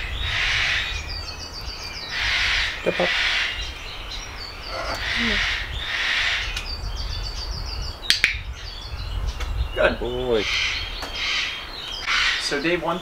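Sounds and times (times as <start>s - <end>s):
harsh hissy bird calls: 2.1s - 6.8s, 9.8s - 13.0s.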